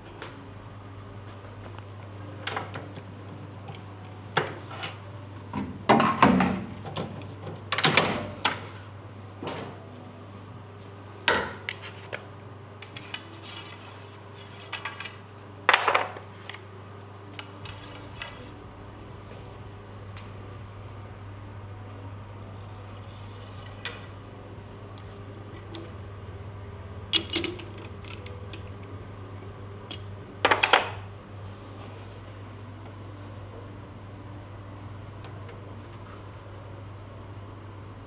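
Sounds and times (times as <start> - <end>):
steady low hum: 0.0 - 38.0
tools knocking and clinking: 27.1 - 28.6.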